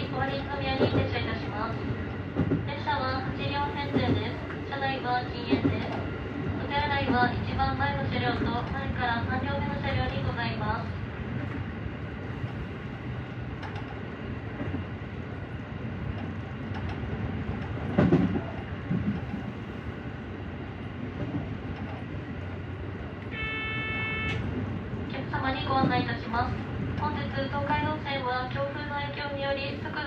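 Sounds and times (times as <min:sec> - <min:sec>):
train wheels rumbling on rail: 0:00.0 - 0:30.0
brief electronic tone: 0:23.3 - 0:24.4.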